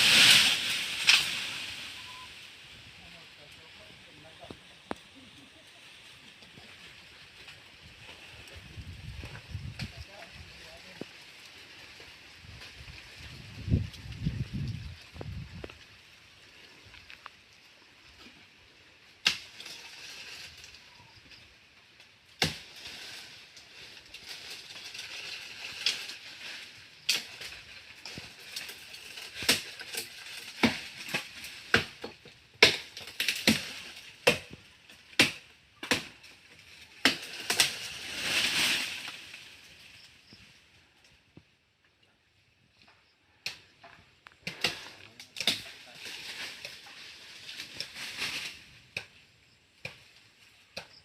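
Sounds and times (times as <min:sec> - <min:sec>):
branches cracking: 0:00.0 - 0:02.9, 0:03.5 - 0:41.2, 0:42.7 - 0:49.2
leaves rustling: 0:00.0 - 0:41.6, 0:42.4 - 0:51.0.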